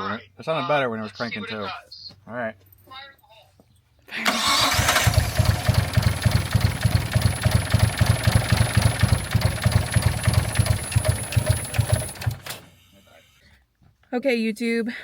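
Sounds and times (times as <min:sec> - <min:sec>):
engine cranking by starter: 0:04.2 - 0:13.0.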